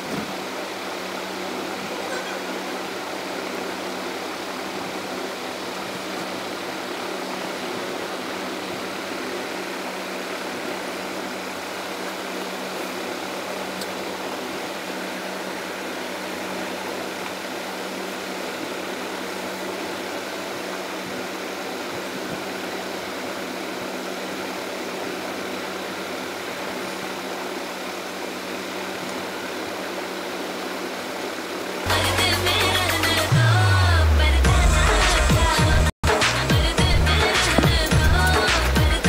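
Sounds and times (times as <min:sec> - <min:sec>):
background hiss: 0:36.1 - 0:39.0.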